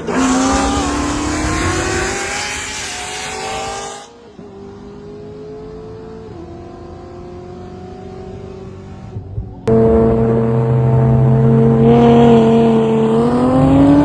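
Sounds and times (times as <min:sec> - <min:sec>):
car engine accelerating: 0:00.0 - 0:14.0
steady engine drone: 0:09.6 - 0:14.0.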